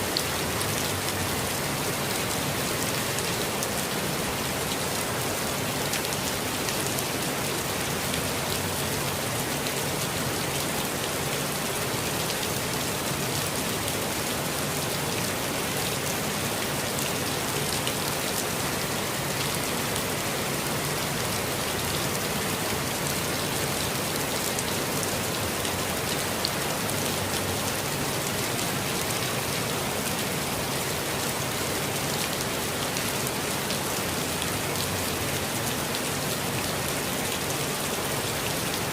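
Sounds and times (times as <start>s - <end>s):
steady rainfall pattering: 0.0s - 38.9s.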